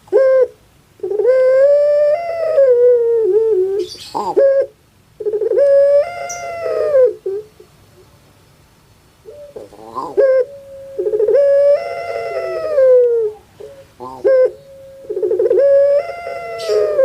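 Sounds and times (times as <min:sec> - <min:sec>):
dove cooing: 0:00.0 - 0:08.1, 0:09.2 - 0:17.0.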